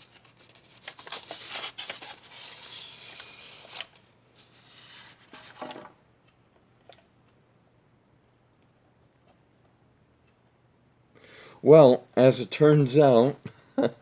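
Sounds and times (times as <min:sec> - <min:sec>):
packaging rustling and scraping: 0:00.0 - 0:05.9.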